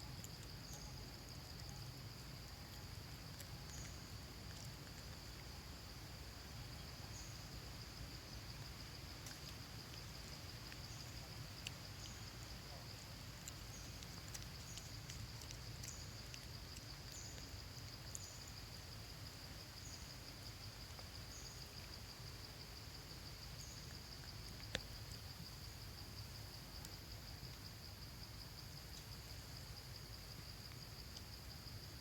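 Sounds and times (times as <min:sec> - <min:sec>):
insect chirps: 0:00.0 - 0:32.0
insects buzzing: 0:00.0 - 0:32.0.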